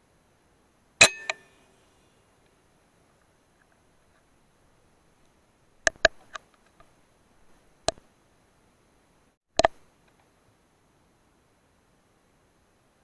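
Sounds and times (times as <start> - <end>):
sharp clicks and knocks: 5.8 - 6.9, 9.6 - 10.3.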